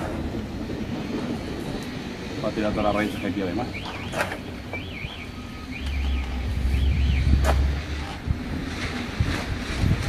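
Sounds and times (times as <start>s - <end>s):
wind buffeting microphone: 0.0s - 10.0s
high warbling whistle: 3.1s - 7.7s.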